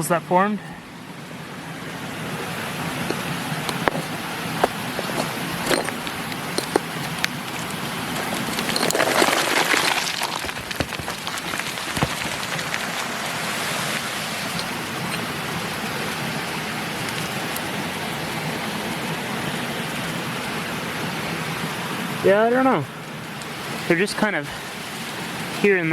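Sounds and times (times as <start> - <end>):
mountain creek rushing: 0.0 - 25.9
rocks knocking: 2.8 - 13.5.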